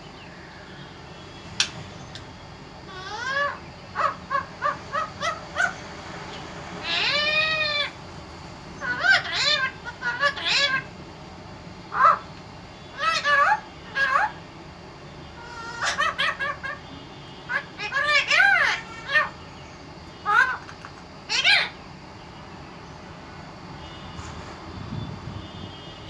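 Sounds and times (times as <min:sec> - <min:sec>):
parrot calling: 0:00.5 - 0:11.1, 0:11.8 - 0:21.9.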